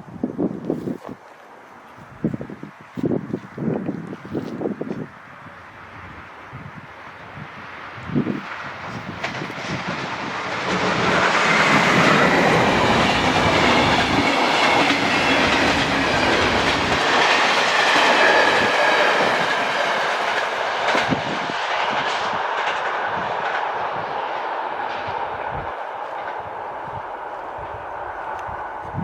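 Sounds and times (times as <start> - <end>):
train wheels rushing on rail: 2.2 - 29.0
clickety-clack over rail joints: 8.0 - 29.0.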